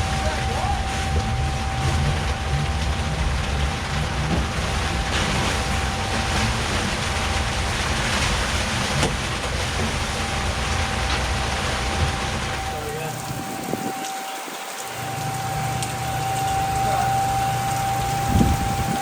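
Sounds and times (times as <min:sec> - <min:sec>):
faint high whine: 0:00.0 - 0:03.2, 0:12.0 - 0:19.0
low rumble: 0:00.0 - 0:14.0
steady rain falling: 0:00.0 - 0:19.0.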